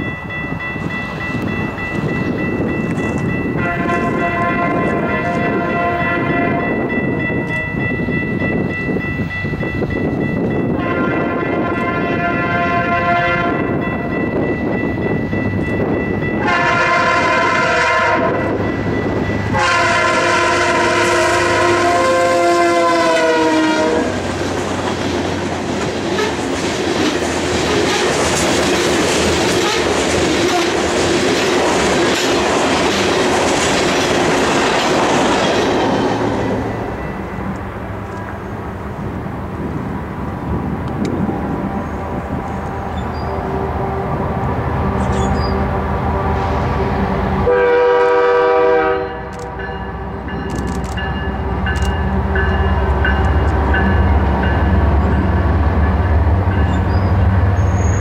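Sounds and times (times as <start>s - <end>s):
train wheels on rails: 0.0s - 58.0s
train horn blasts: 3.6s - 7.8s, 10.6s - 14.2s, 16.3s - 18.7s, 19.5s - 24.3s, 26.1s - 26.4s, 29.6s - 30.8s, 41.5s - 50.1s.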